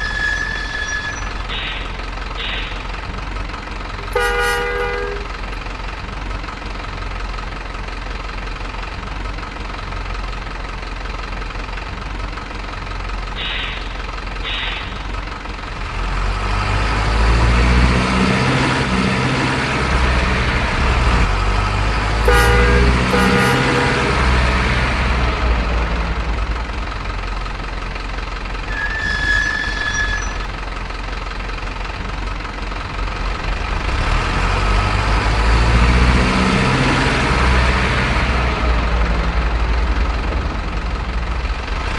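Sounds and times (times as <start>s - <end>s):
vehicle engine rumbling: 0.0s - 41.9s
horn blasts: 4.0s - 5.4s, 22.2s - 24.6s.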